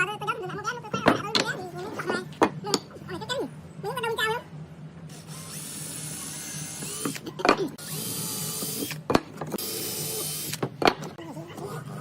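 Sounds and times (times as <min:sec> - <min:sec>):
power tool motor whine: 0:05.1 - 0:09.0, 0:09.6 - 0:10.6.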